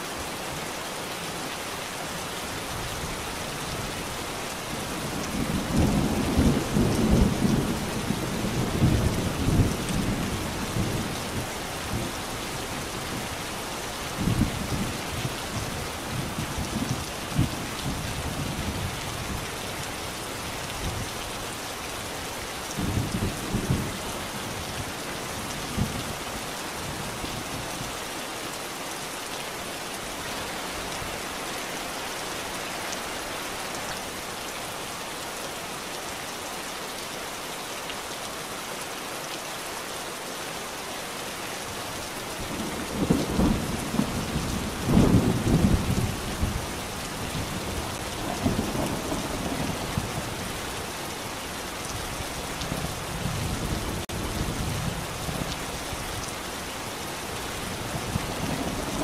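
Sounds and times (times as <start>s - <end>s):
steady rainfall: 0.0s - 59.0s
thunder rumbling: 47.4s - 50.5s.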